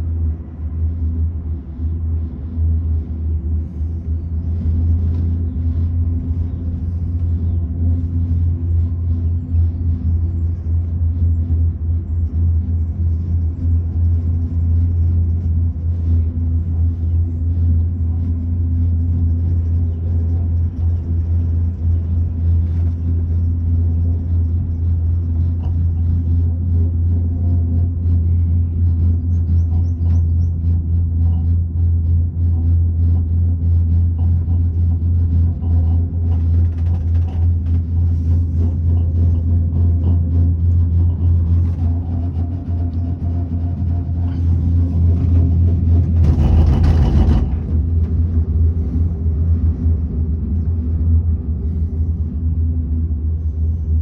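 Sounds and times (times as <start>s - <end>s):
cable car gondola rumble: 0.0s - 54.0s
faint ticks and rattles: 34.2s - 49.0s.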